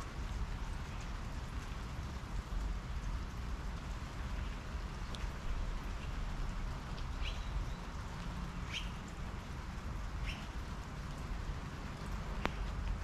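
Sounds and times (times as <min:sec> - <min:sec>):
rain falling on patio: 0:00.0 - 0:13.0
small bird chirping: 0:07.1 - 0:07.9, 0:08.6 - 0:09.0, 0:10.2 - 0:10.6.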